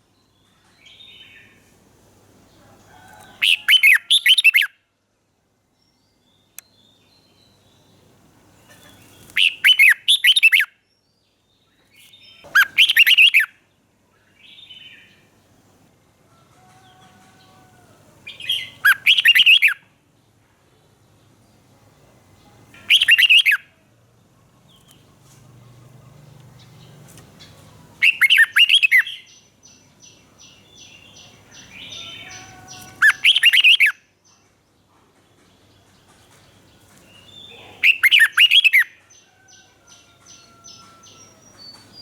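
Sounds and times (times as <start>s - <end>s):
bird singing whistled phrases: 9.4s - 10.7s, 12.6s - 13.5s, 18.5s - 19.8s, 22.9s - 23.6s, 28.0s - 29.4s, 32.0s - 34.0s, 37.3s - 38.9s
faint bird calls: 24.6s - 29.4s, 30.4s - 34.0s, 37.0s - 39.7s.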